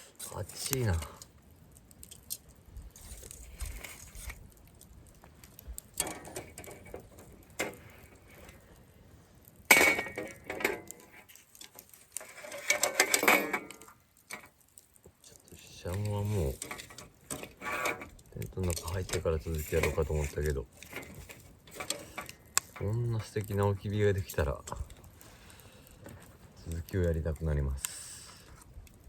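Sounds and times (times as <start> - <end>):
cooking gear clinking and rattling: 5.9 - 8.7, 9.7 - 14.6, 15.8 - 27.2.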